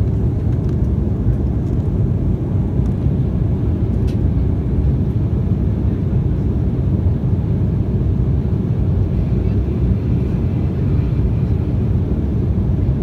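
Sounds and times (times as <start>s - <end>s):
jet airliner cabin rumble: 0.0s - 13.0s.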